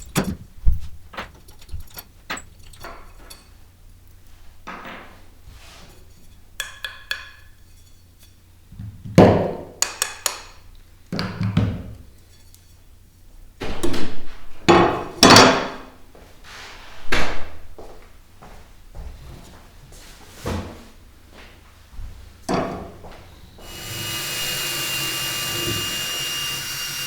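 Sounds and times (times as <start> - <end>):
knocks of hard objects: 9.0 - 10.6.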